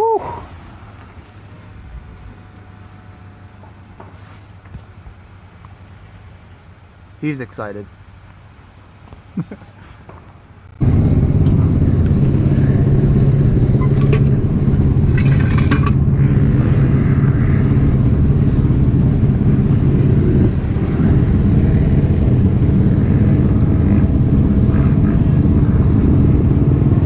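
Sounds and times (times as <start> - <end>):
loud steady rumble: 0.0 - 7.2, 10.6 - 27.0
wind buffeting helmet camera: 10.6 - 27.0
clatter of clicks: 15.1 - 16.0.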